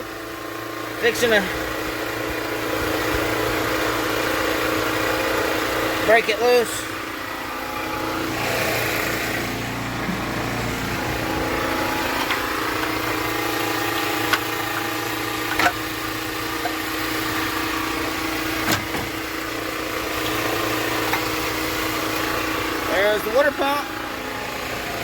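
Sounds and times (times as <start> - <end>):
motor idling hum: 0.0 - 25.0
metal clicks and knocks: 15.5 - 15.8.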